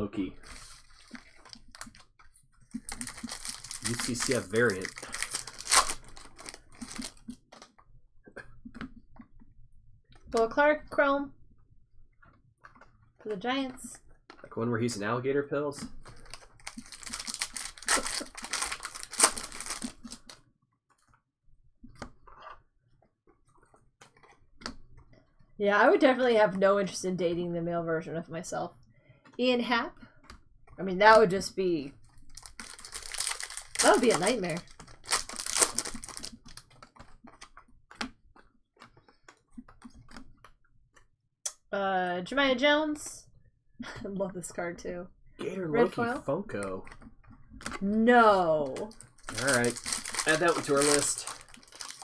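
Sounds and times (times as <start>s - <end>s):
wrapper tearing and crinkling: 0.5s - 2.0s, 2.8s - 7.4s, 16.1s - 20.4s, 32.2s - 36.8s, 48.8s - 52.0s
cards rustling: 2.8s - 7.4s, 16.1s - 20.4s, 32.3s - 36.6s, 48.8s - 52.0s.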